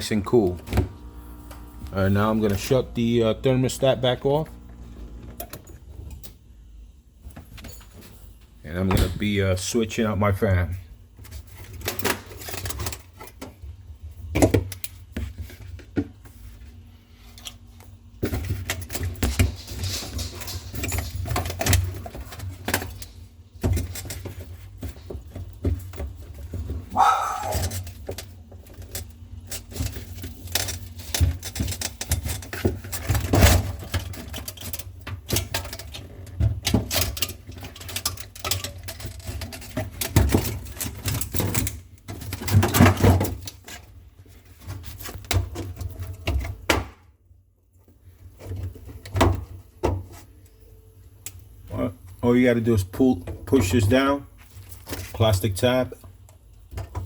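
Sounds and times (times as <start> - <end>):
hands clicking and rattling parts: 17.3 - 46.9.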